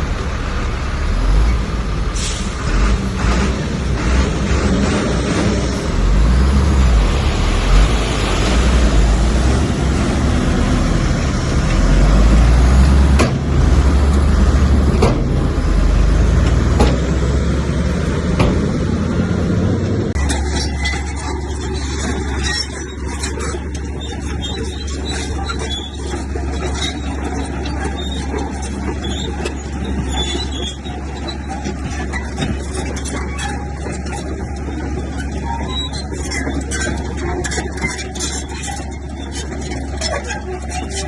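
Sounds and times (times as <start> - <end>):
heavy diesel machinery rumbling: 0.0 - 41.0
scraping noise: 20.0 - 41.0.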